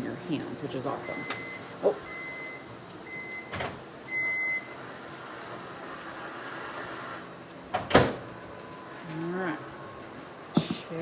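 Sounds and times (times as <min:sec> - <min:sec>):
microwave oven beeping: 0:00.8 - 0:07.2.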